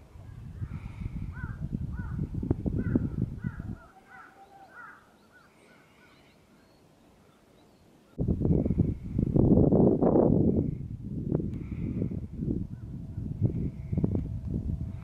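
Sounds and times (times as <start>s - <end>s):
wind rumbling on microphone: 0.0s - 3.9s, 8.2s - 15.0s
birds calling: 0.3s - 8.2s.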